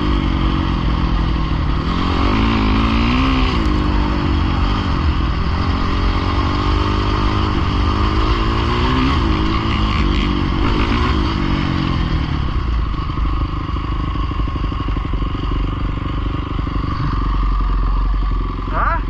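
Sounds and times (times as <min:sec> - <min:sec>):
pit bike engine revving and idling: 0:00.0 - 0:19.0.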